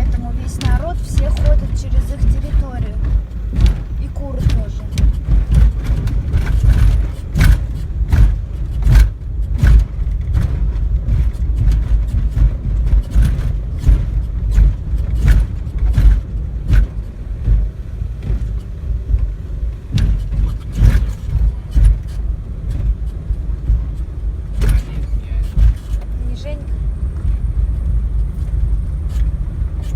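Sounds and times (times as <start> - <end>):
car cabin low rumble: 0.0 - 29.9
short knocks and rattles: 0.0 - 29.9.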